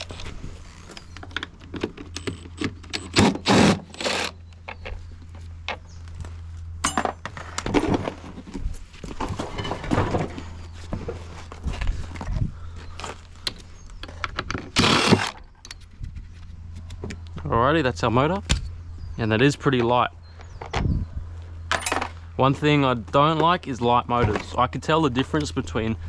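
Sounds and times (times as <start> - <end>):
metal parts clanking and rattling: 0.0 - 5.0, 6.8 - 10.6, 21.7 - 22.2
steady low hum: 0.0 - 26.0.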